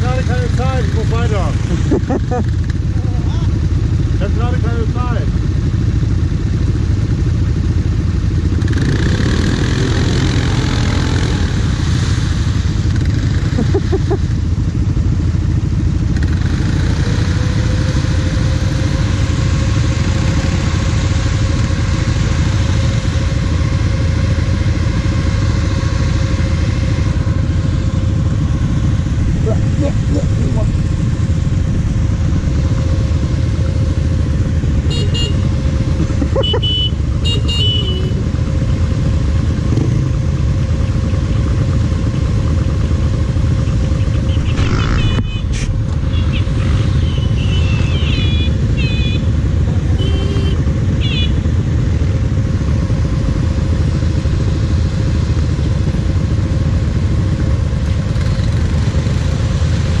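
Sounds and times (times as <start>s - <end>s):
atv engine idling: 0.0s - 60.0s.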